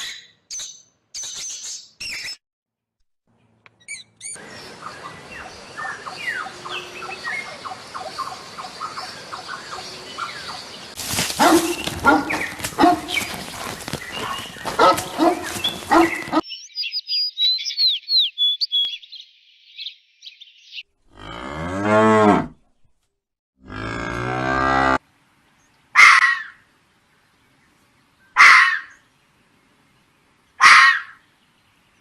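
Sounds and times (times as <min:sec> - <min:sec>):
high chirping: 0:04.4 - 0:18.0
cattle mooing: 0:10.2 - 0:16.4, 0:23.7 - 0:25.0.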